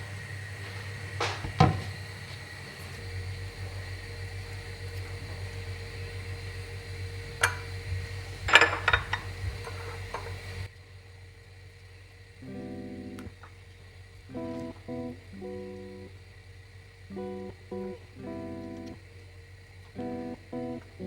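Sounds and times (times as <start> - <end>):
kitchen appliance hum: 0.0 - 21.0
kitchenware clinking: 8.5 - 10.4.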